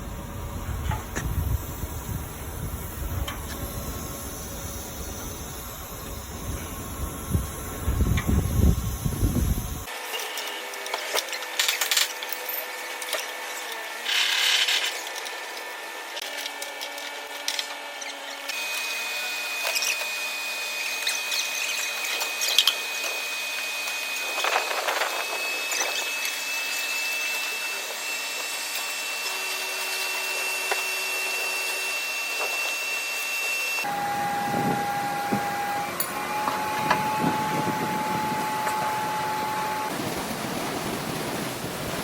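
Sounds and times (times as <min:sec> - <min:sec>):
power tool whining: 0:00.8 - 0:40.0.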